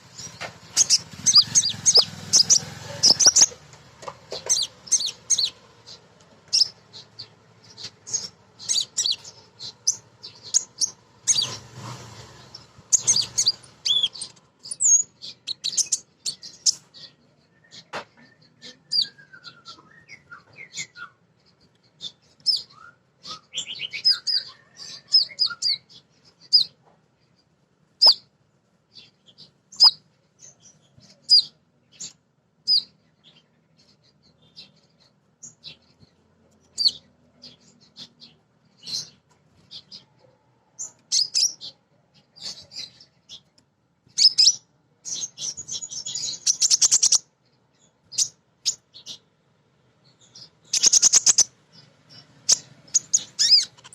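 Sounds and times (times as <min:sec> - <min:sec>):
bird chirping: 0:00.0 - 0:53.9
bird rattling call: 0:00.1 - 0:06.8, 0:07.8 - 0:16.0, 0:50.7 - 0:51.5.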